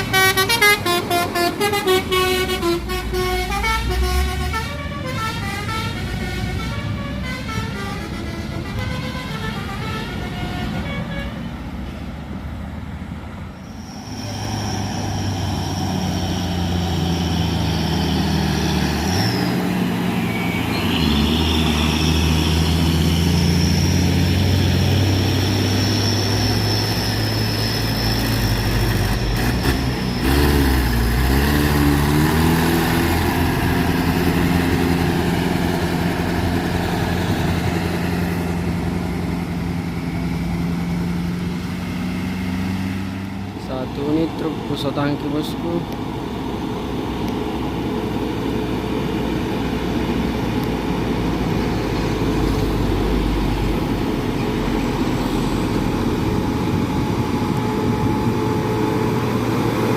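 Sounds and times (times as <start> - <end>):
heavy truck engine pulling hard: 0.0 - 59.9
steady high whine: 48.4 - 59.9.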